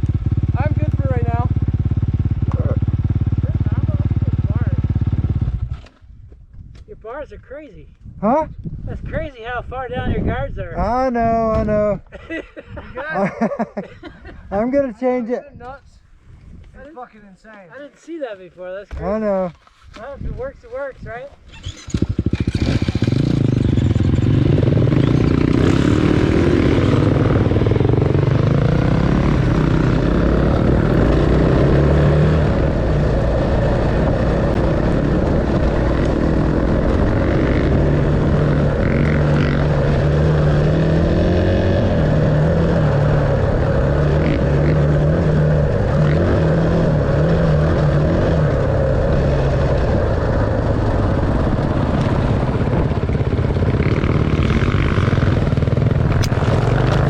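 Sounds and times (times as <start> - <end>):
dirt bike engine revving: 21.5 - 57.0.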